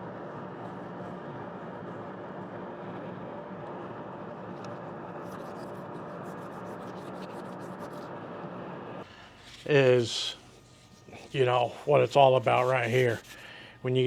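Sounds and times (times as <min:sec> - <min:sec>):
faint clicks of sanding: 0:04.6 - 0:08.1, 0:09.0 - 0:14.0
wood lathe running: 0:09.4 - 0:14.0.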